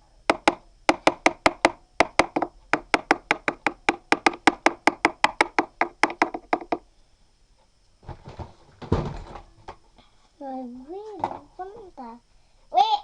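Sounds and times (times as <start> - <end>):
rapid hollow woody knocks: 0.3 - 6.8.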